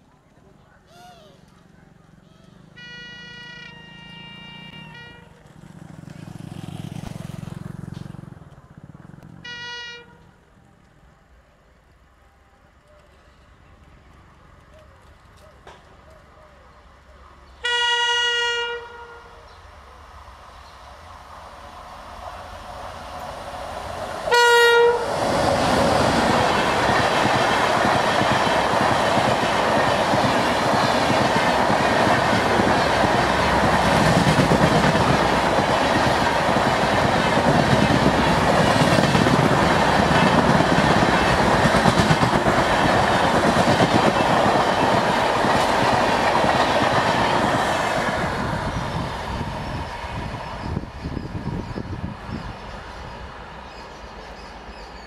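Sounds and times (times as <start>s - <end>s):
locomotive horn blast: 2.2s - 5.5s, 9.4s - 10.4s, 17.6s - 19.5s, 24.3s - 25.2s
train rushing past: 2.3s - 10.7s, 17.6s - 55.0s.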